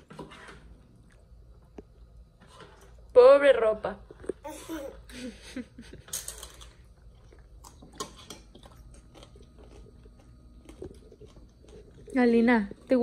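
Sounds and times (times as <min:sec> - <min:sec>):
children chewing and crunching: 0:04.1 - 0:13.0.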